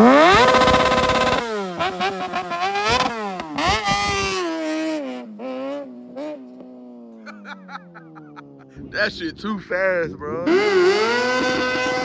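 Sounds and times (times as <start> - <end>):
engine revving hard: 0.0 - 6.4, 10.3 - 12.0.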